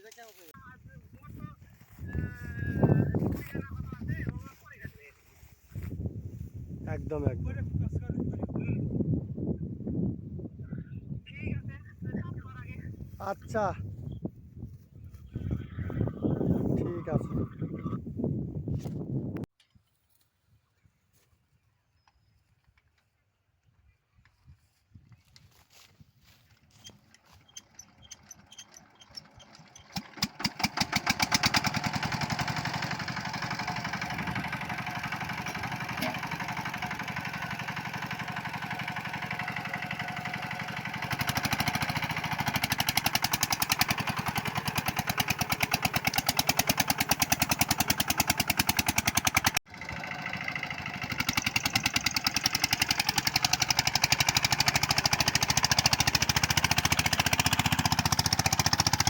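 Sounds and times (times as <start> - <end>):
single-cylinder diesel engine running: 0.4 - 4.9, 26.2 - 59.0
engine starting pops: 27.5 - 33.7.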